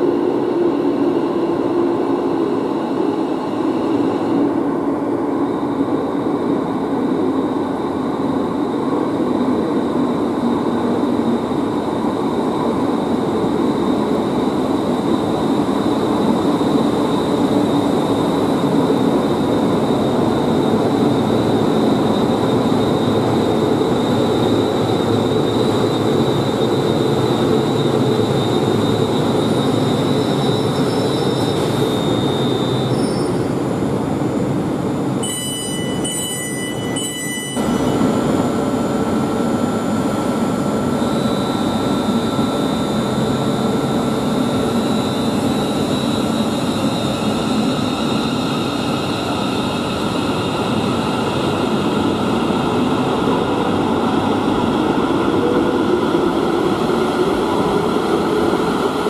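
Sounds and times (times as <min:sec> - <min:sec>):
thin high whine: 0:35.2 - 0:39.0.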